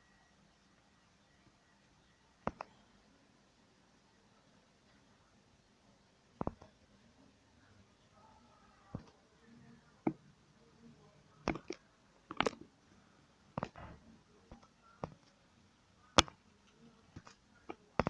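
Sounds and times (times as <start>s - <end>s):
plastic bricks clicking: 11.5s - 12.6s.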